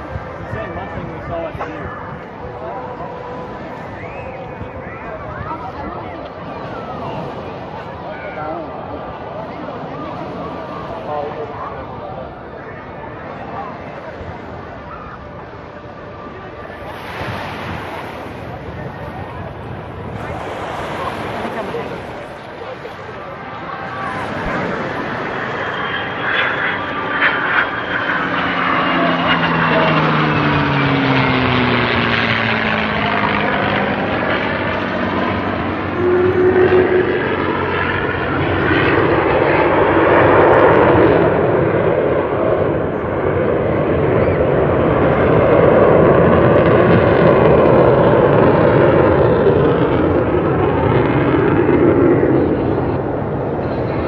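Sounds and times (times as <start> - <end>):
aircraft engine flying past: 0.0 - 54.0.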